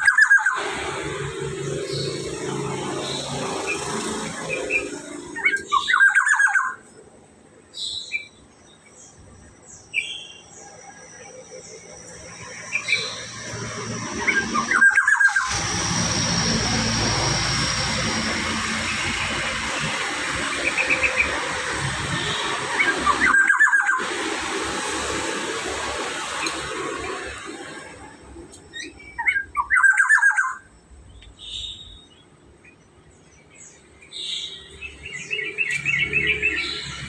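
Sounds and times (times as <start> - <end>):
bird harsh squealing call: 0.0 - 2.3, 2.9 - 6.9, 12.6 - 24.1, 28.7 - 30.7
steady hiss: 24.0 - 28.6.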